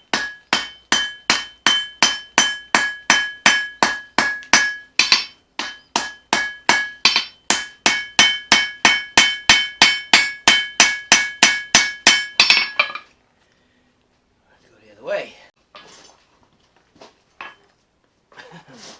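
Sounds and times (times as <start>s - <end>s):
hammer striking steel on anvil: 0.0s - 13.1s.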